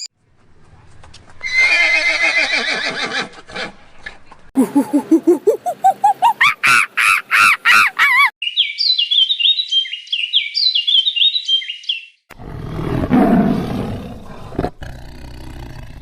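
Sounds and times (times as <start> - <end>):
bird singing whistled notes: 8.4 - 12.2
deep animal roar: 12.3 - 16.0.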